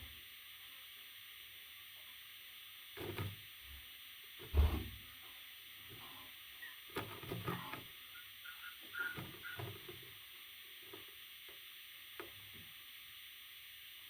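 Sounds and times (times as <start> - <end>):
steady hiss: 0.0 - 14.0
rustling and scratching: 6.9 - 8.0, 8.9 - 11.1
high peeps of parrot chicks: 7.5 - 9.8.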